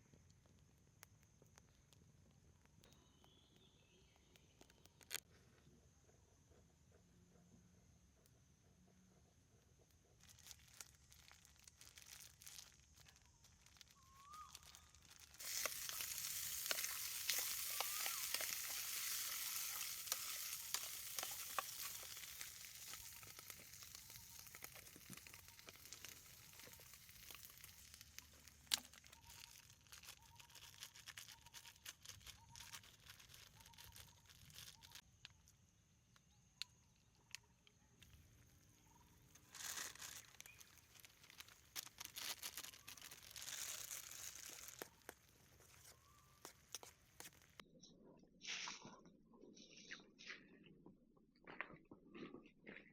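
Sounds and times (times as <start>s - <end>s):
food frying with crackles: 10.1s - 35.1s, 39.1s - 47.6s.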